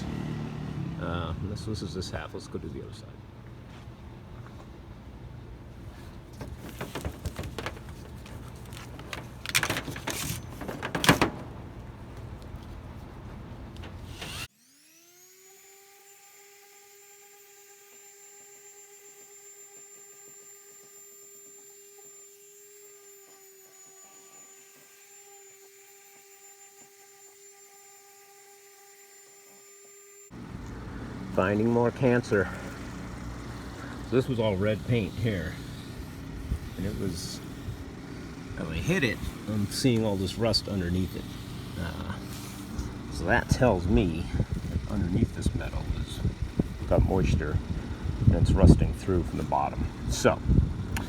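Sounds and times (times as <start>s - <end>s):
rubbing on sheet metal: 6.4s - 11.4s
small electric motor whine: 13.9s - 51.0s.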